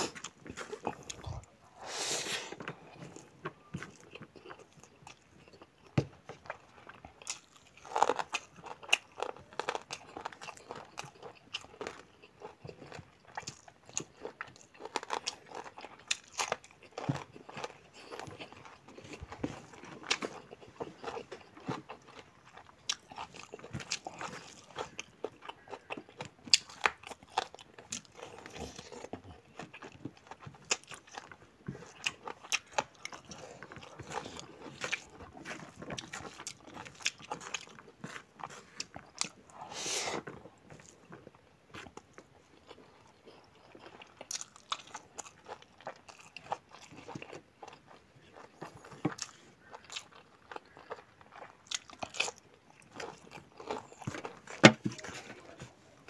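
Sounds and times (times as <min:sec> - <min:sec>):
person chewing food: 0:00.0 - 0:56.0.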